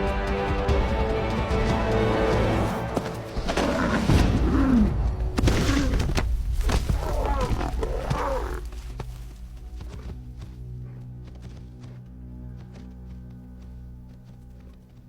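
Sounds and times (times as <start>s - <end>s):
background music: 0.0s - 15.0s
lionesses growling: 3.2s - 12.0s.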